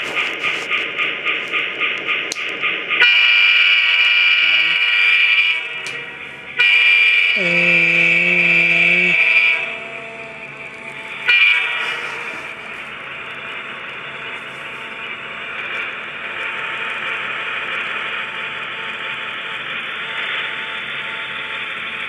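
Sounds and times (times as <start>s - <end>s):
rhythmic air compressor pumping: 0.0s - 3.6s, 10.8s - 13.1s
diesel horn blasts: 3.0s - 12.8s.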